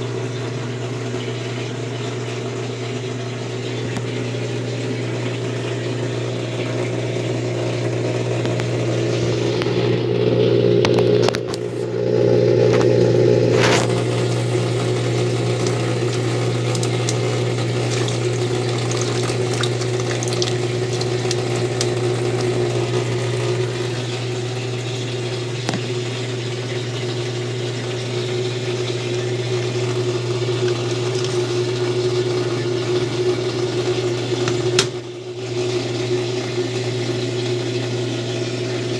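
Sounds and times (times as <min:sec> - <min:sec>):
washing machine humming: 0:00.0 - 0:38.9.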